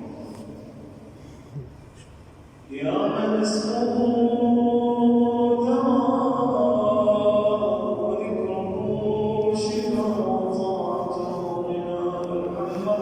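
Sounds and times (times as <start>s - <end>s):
man chanting: 2.7s - 13.0s.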